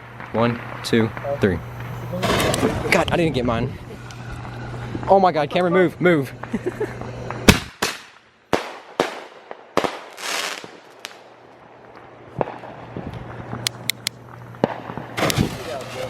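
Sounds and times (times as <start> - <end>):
fireworks bangs: 0.0 - 5.1, 6.2 - 16.0
fireworks hissing burst: 0.0 - 5.2, 9.8 - 11.2, 14.2 - 16.0
fireworks crackling: 0.0 - 16.0.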